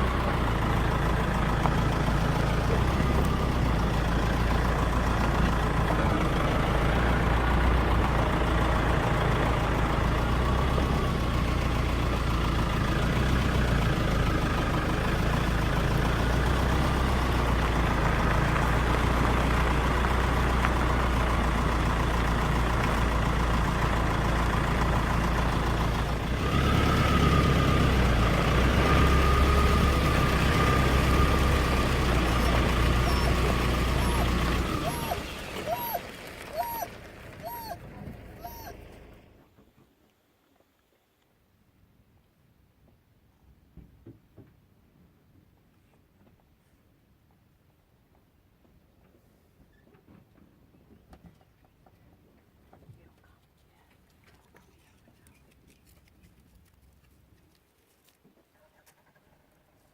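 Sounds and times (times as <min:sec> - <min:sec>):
vehicle engine running: 0:00.0 - 0:39.4.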